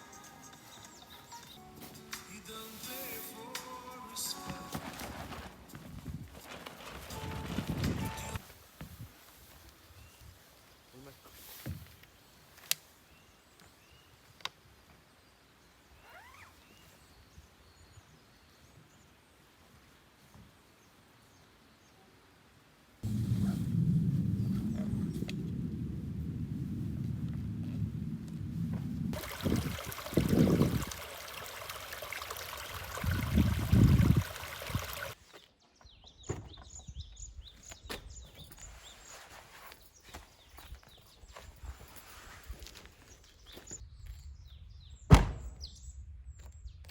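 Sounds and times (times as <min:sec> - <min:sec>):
low buffets: 0:23.0 - 0:29.1
steady rushing noise: 0:23.0 - 0:29.2
birds chirping: 0:29.2 - 0:39.3.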